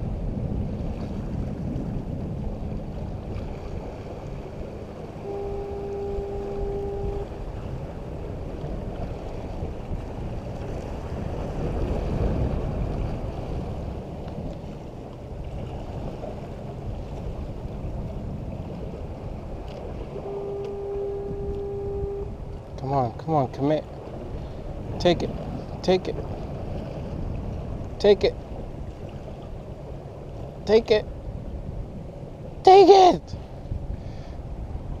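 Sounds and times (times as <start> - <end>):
surf rumble: 0.0 - 35.0
wind buffeting microphone: 0.0 - 35.0
steady tone: 4.2 - 8.5, 19.9 - 23.1.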